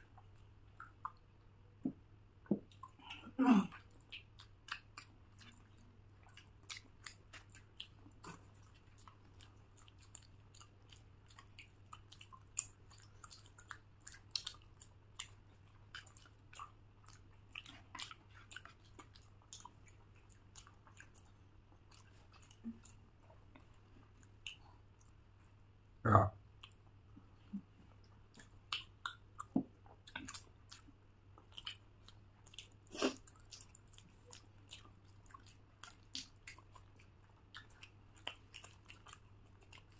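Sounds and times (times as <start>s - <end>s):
faint steady hum: 0.0s - 39.9s
chewing and biting food: 2.5s - 25.2s, 26.6s - 39.9s.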